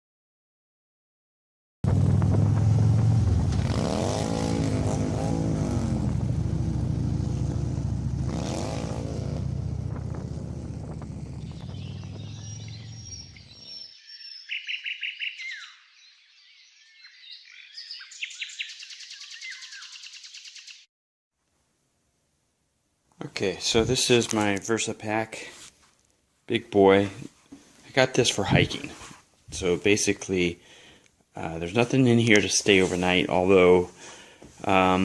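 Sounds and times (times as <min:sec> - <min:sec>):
motorcycle engine revving: 0:01.8 - 0:13.8
birds chirping and trilling: 0:10.8 - 0:20.9.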